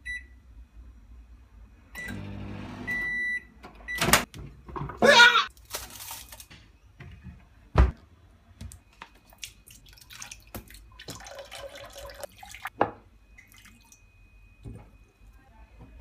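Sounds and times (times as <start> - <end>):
water dripping and splashing: 9.0 - 12.7.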